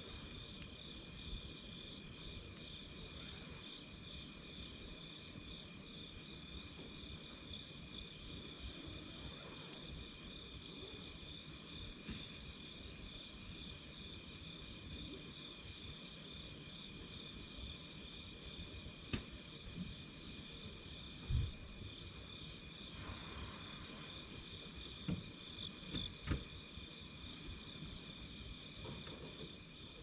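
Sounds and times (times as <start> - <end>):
campfire crackling: 0.0 - 30.0
night insects trilling: 0.0 - 30.0
fire sharp pop: 19.0 - 19.9.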